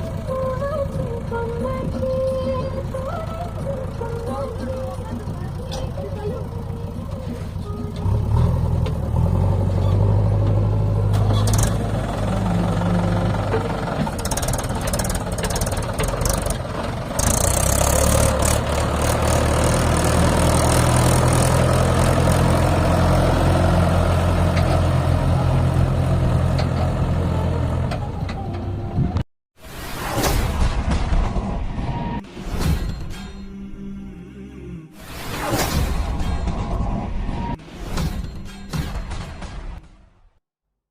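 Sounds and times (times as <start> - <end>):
heavy diesel engine running: 0.0 - 29.0.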